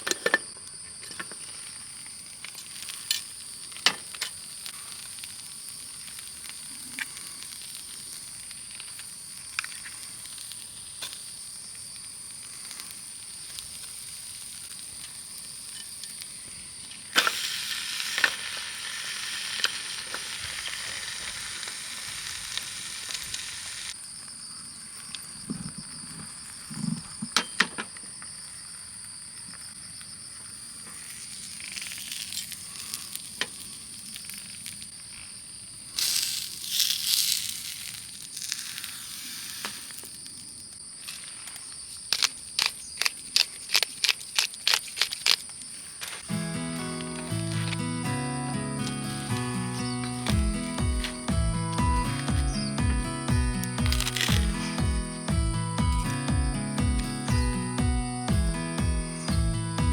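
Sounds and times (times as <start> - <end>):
insect chirring: 1.4 - 27.3, 28.1 - 59.9
food sizzling on griddle: 1.6 - 24.0, 35.9 - 40.3, 46.2 - 58.4.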